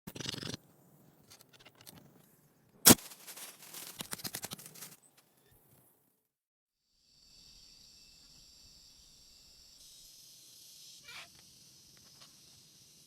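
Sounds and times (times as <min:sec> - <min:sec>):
quick clicking and rustling: 0:02.9 - 0:05.3.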